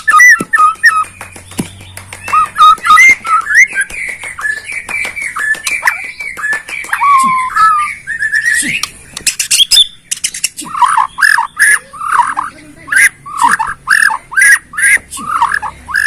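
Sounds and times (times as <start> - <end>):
bird singing whistled notes: 0.0 - 12.1
short sharp bird ticks: 8.4 - 11.8.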